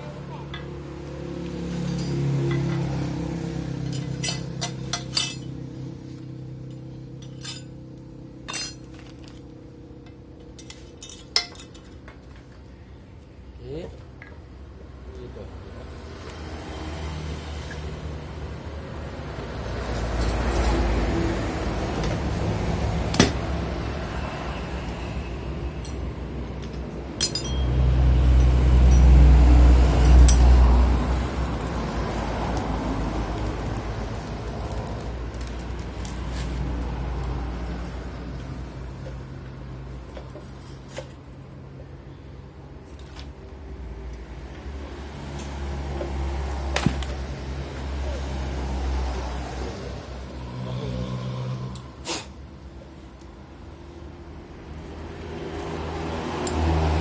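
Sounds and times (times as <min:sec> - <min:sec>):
metal tools clinking: 0:01.7 - 0:02.8, 0:03.8 - 0:05.6, 0:06.6 - 0:09.5, 0:10.4 - 0:12.6, 0:25.8 - 0:27.8, 0:30.0 - 0:30.6, 0:40.1 - 0:41.2
metallic clinks of tools: 0:03.9 - 0:05.6, 0:06.7 - 0:07.8, 0:08.5 - 0:09.0, 0:25.8 - 0:27.8, 0:30.0 - 0:30.5.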